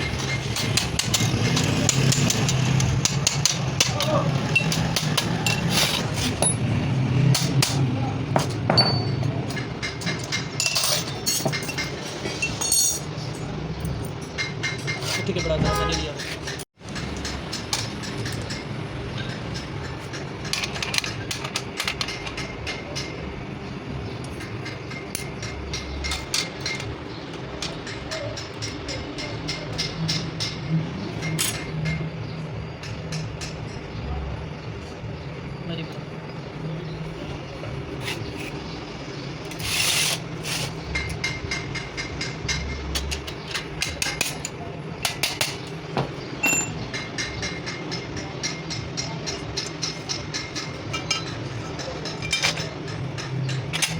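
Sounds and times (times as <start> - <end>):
rasping metal scrape: 39.5 - 40.9.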